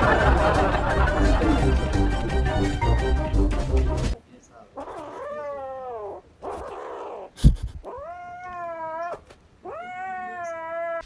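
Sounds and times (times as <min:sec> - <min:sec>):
cat yowling: 0:04.8 - 0:11.0.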